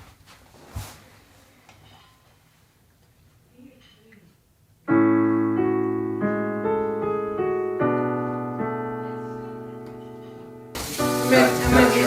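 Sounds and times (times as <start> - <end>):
piano notes and chords: 4.8 - 12.0.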